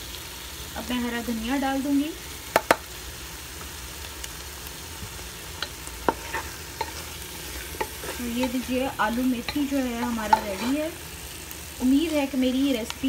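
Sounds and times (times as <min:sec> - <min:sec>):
food sizzling in a pan: 0:00.0 - 0:13.0
short taps against a pan: 0:02.5 - 0:02.8.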